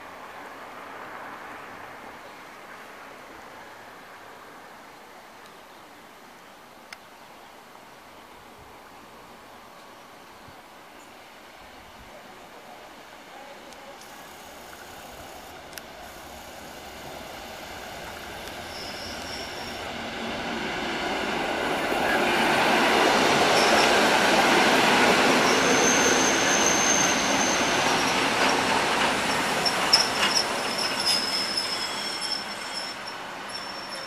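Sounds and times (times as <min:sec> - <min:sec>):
train rumbling on rails: 0:14.0 - 0:34.0
high wheel squeals: 0:17.9 - 0:20.0, 0:23.4 - 0:24.2, 0:25.3 - 0:34.0.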